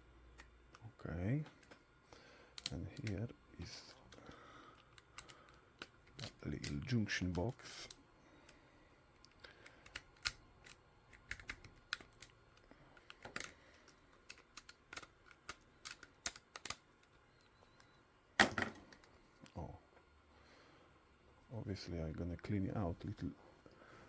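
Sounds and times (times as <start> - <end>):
plastic clicks and snaps: 9.2 - 19.6.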